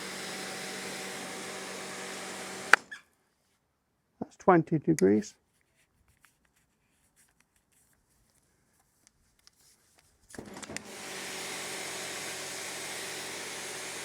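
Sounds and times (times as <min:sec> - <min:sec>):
pressure washer motor humming: 0:00.0 - 0:02.9, 0:10.4 - 0:14.0
water jet hissing: 0:00.0 - 0:02.9, 0:10.9 - 0:14.0.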